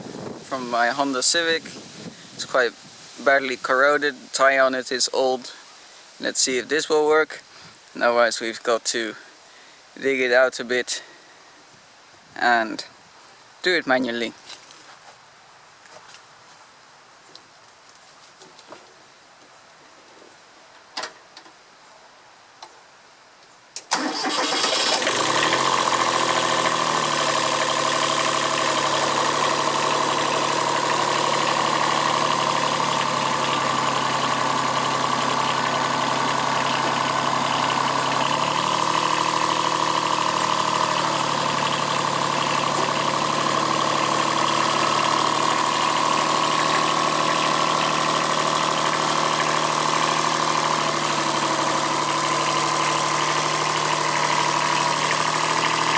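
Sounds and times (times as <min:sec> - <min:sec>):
tractor diesel engine running: 0:00.0 - 0:02.7, 0:23.9 - 0:55.9.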